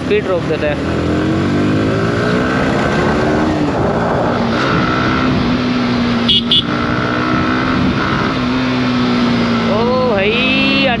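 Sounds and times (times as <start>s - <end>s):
wind rush on microphone: 2.7s - 5.9s, 7.0s - 8.4s.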